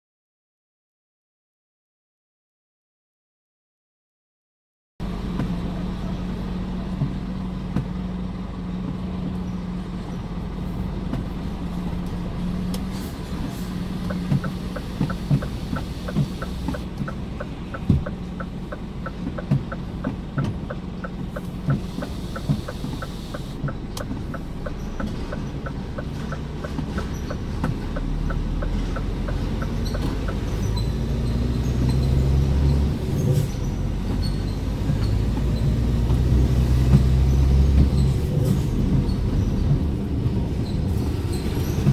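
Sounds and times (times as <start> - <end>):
truck diesel engine running: 5.0 - 41.9
regular ticking: 13.8 - 32.2.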